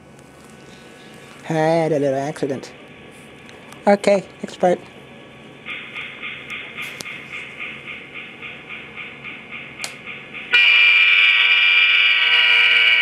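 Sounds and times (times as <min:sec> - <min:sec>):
locomotive bell ringing: 0:10.4 - 0:13.0
diesel horn: 0:10.6 - 0:13.0.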